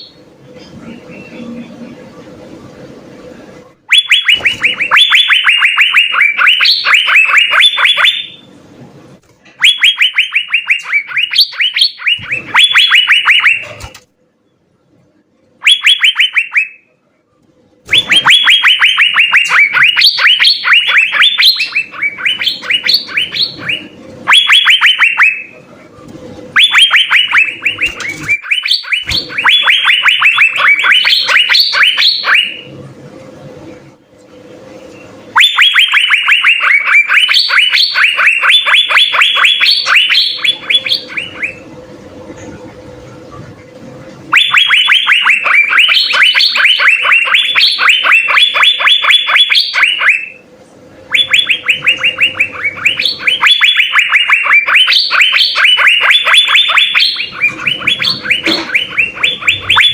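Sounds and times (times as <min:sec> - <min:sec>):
bird whistling song: 0:03.9 - 0:08.5, 0:09.6 - 0:13.9, 0:15.6 - 0:16.9, 0:17.9 - 0:25.6, 0:26.5 - 0:32.8, 0:34.9 - 0:41.7, 0:44.3 - 0:50.4, 0:51.1 - 0:59.9.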